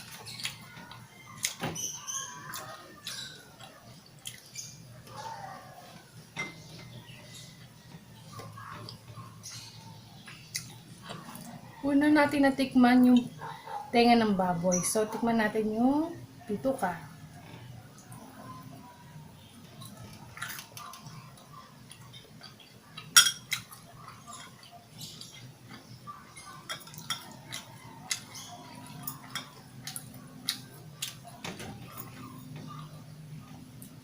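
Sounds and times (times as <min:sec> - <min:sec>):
person chewing food: 0:00.0 - 0:11.7, 0:19.4 - 0:34.0.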